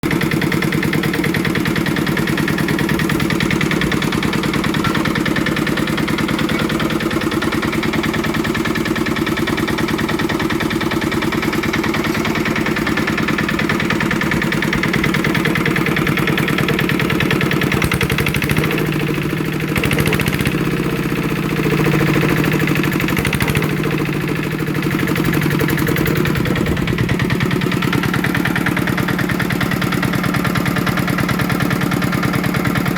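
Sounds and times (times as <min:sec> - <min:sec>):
diesel engine idling: 0:00.0 - 0:32.9.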